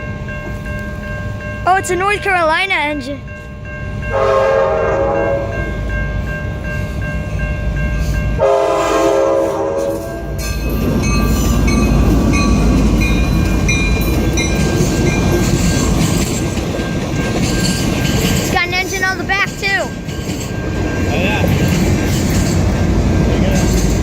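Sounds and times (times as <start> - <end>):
railroad crossing bell ringing: 0.0 - 24.0
train wheels rumbling on rails: 0.0 - 24.0
train horn blasts: 4.1 - 5.6, 8.4 - 10.4.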